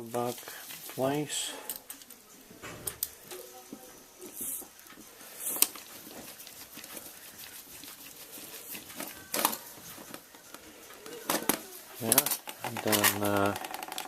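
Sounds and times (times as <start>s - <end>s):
short hissing bursts: 4.3s - 5.8s
small parts clicking and rattling: 8.8s - 14.0s.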